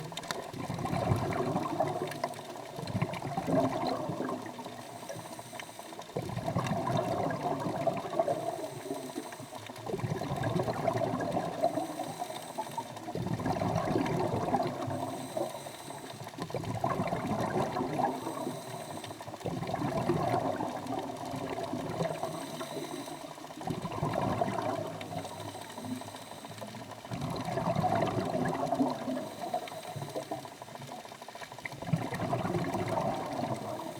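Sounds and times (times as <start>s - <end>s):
exhaled bubbles rushing: 0.0s - 33.9s
diver breathing through regulator: 4.8s - 6.0s, 11.6s - 12.9s, 14.7s - 16.2s, 18.0s - 19.3s, 22.0s - 23.3s.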